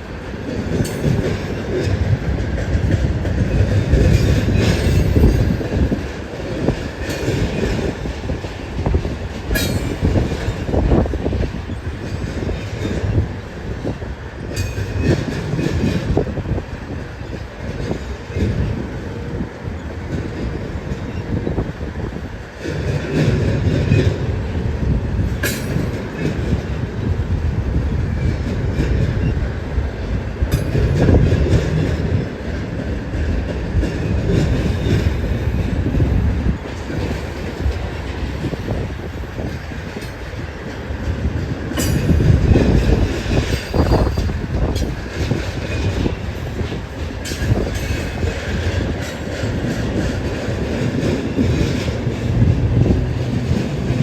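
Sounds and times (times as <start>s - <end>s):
freight train wheels rumbling on rail: 0.0s - 54.0s
wind gusting on microphone: 0.0s - 54.0s
sharp metal clanks: 9.6s - 10.1s, 25.4s - 26.0s, 41.8s - 42.4s.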